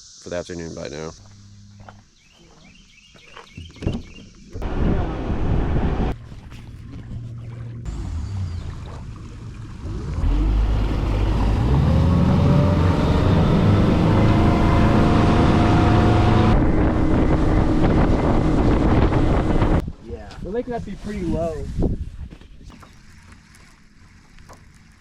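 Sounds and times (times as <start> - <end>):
wind rushing over microphone: 4.6 - 7.2, 10.9 - 22.3
boat motor running: 4.6 - 19.8, 22.7 - 25.0.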